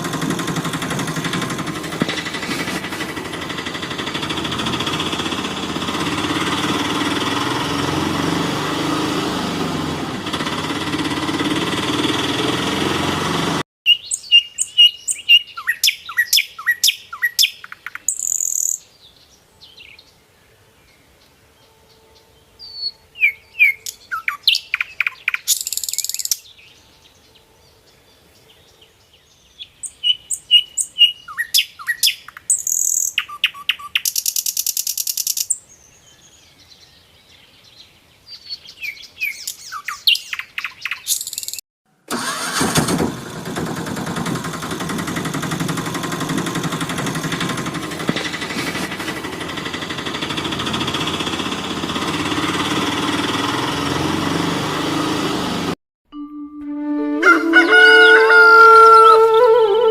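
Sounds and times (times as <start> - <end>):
steady mechanical noise: 0.0 - 13.6, 42.1 - 55.8
small birds chirping: 13.9 - 20.2, 22.6 - 26.8, 28.4 - 41.6.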